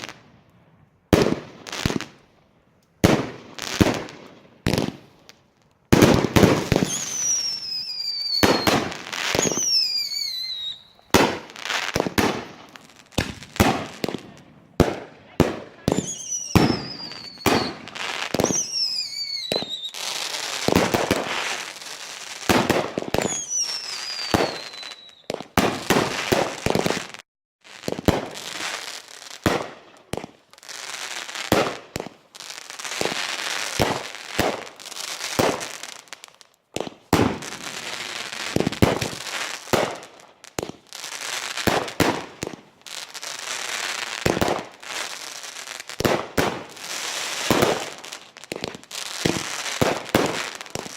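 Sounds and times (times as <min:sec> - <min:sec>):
fireworks bangs and crackling: 0:00.0 - 0:50.9
firework whistles falling in pitch: 0:06.6 - 0:11.2, 0:15.9 - 0:21.6, 0:23.1 - 0:25.4.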